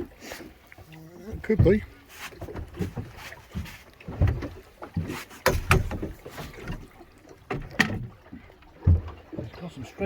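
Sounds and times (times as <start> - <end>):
water slapping boat hull: 0.0 - 10.0.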